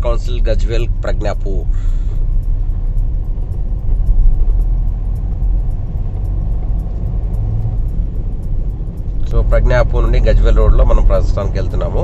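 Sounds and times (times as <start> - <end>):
road vehicle rumble: 0.0 - 12.0
faint background music: 3.7 - 12.0.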